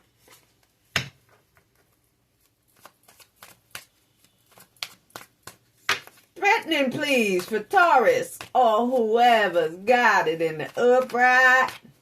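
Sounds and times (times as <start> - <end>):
cards being shuffled: 1.5 - 9.1.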